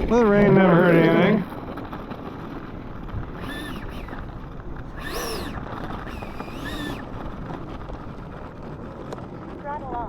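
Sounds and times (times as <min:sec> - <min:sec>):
electric fan whining: 0:00.0 - 0:10.0
wind: 0:00.0 - 0:10.0.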